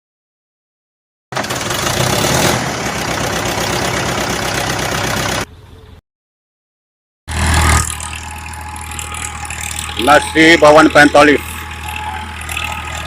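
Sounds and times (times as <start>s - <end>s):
tractor diesel engine running: 1.3s - 5.6s, 7.3s - 13.0s.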